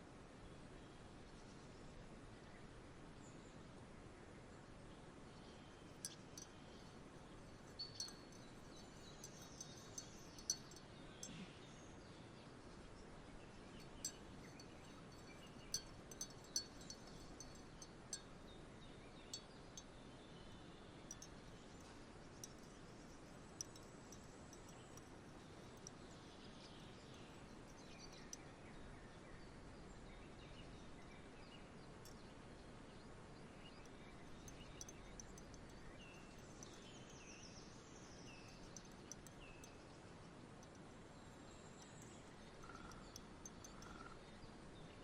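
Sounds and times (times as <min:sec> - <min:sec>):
soft outdoor hiss: 0:00.0 - 0:45.0
wind chimes tinkling: 0:06.0 - 0:11.5, 0:13.8 - 0:18.3, 0:34.3 - 0:37.3, 0:41.8 - 0:44.2.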